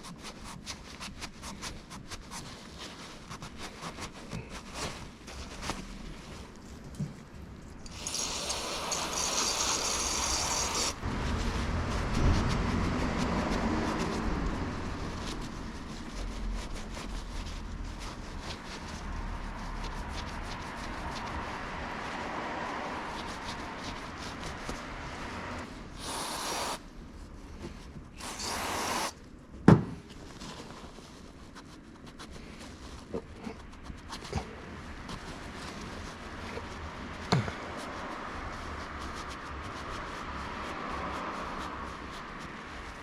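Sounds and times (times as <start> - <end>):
rubbing and scraping brake parts: 0.0 - 11.3
aerosol cleaner hissing: 7.9 - 11.0, 26.0 - 26.8, 28.2 - 29.2.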